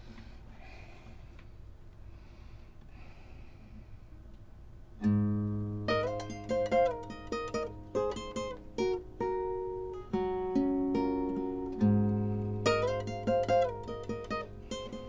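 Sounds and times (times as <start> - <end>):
fingerstyle acoustic guitar: 5.0 - 15.0.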